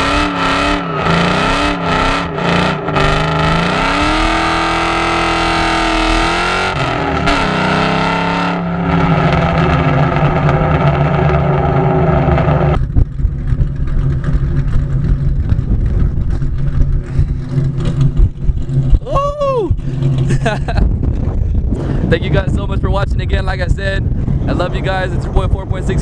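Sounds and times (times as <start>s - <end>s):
car engine revving: 0.0s - 26.0s
engine running rough: 0.0s - 26.0s.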